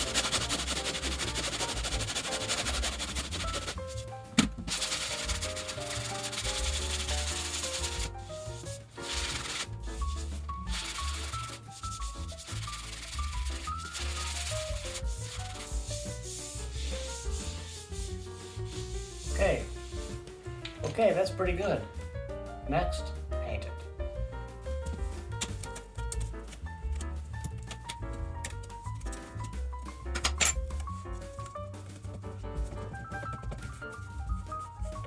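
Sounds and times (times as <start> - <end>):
sandpaper rubbing on wall: 0.0 - 20.3
background music: 0.0 - 35.0.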